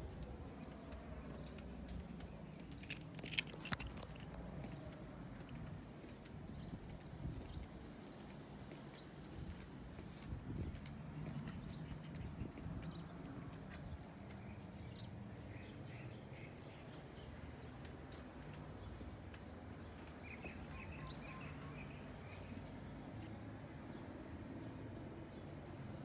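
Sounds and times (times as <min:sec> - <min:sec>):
footsteps: 0:00.0 - 0:14.8
small birds chirping: 0:00.0 - 0:26.0.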